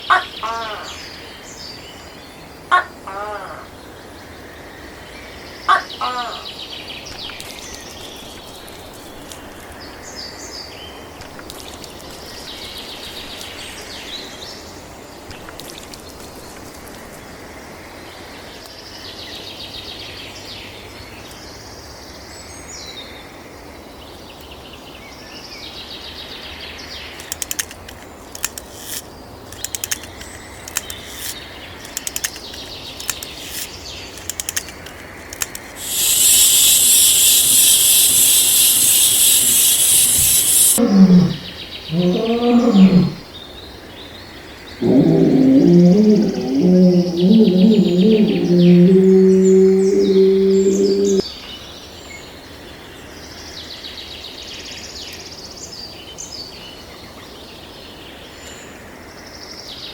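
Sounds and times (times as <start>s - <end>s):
outdoor background noise: 0.0s - 59.9s
sharp clicks: 27.2s - 40.8s
birds chirping: 27.2s - 43.3s, 44.8s - 51.2s.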